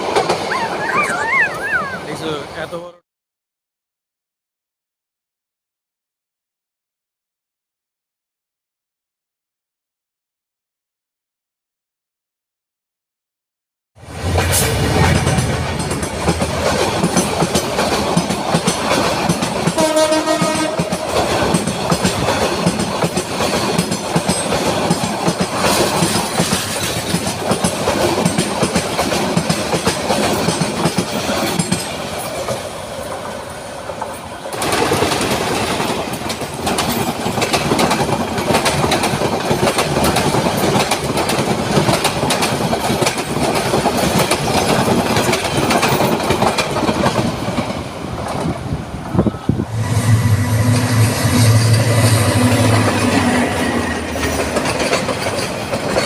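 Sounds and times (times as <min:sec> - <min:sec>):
train rumbling on rails: 0:00.0 - 0:03.0, 0:14.0 - 0:56.0
train horn: 0:19.8 - 0:21.1, 0:49.6 - 0:54.2.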